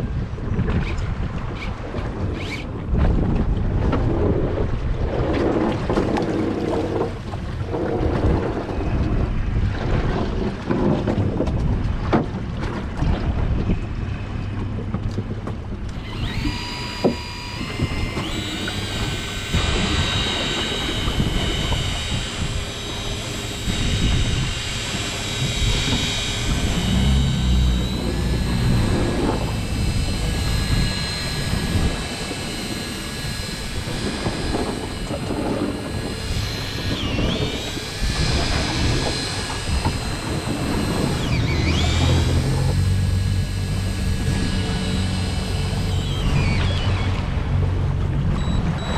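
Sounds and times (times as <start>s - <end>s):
boat engine rumbling: 0.0s - 48.9s
water noise: 0.0s - 48.9s
wind: 0.0s - 48.9s
high steady whine: 15.5s - 48.9s.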